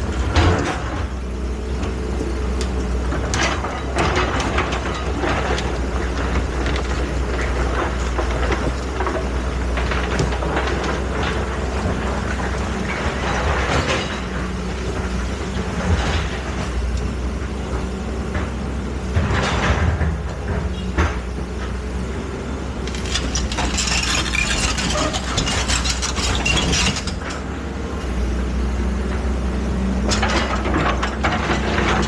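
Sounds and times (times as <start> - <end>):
excavator engine drone: 0.0 - 32.0
metal clanks and knocks: 22.8 - 27.5.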